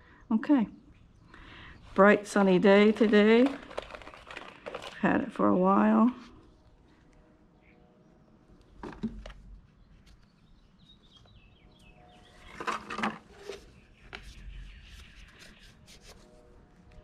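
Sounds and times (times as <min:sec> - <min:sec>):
plastic rustle: 0:02.2 - 0:05.4, 0:12.4 - 0:13.7.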